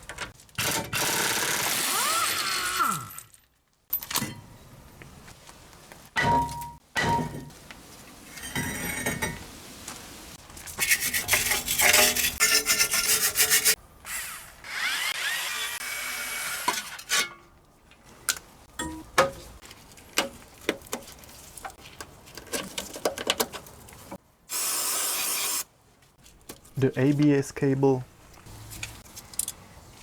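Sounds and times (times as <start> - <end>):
tool rasping and scraping: 10.8 - 15.8.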